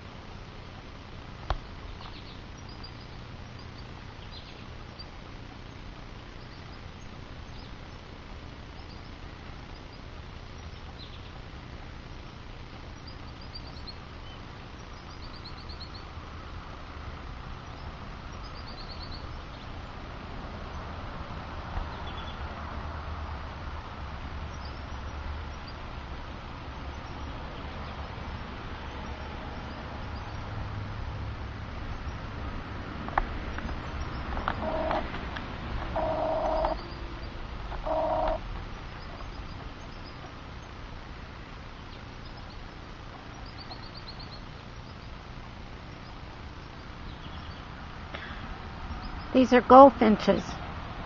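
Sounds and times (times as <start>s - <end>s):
road traffic rumble: 0.0s - 51.0s
songbirds chirping: 0.0s - 51.0s
faint bird chirps: 1.5s - 8.1s, 8.7s - 11.4s, 12.1s - 16.1s, 17.6s - 19.8s, 35.9s - 40.8s, 41.7s - 45.3s.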